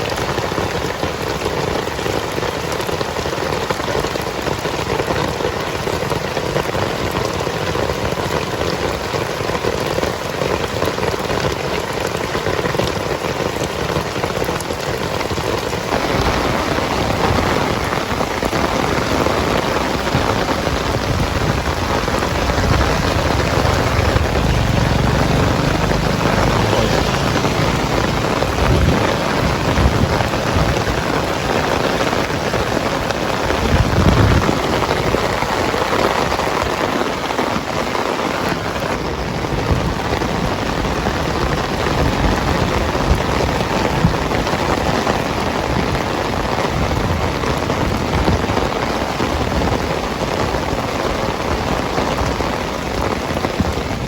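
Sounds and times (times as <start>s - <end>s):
heavy rain pouring: 0.0s - 54.0s
deep rumble: 20.9s - 32.0s.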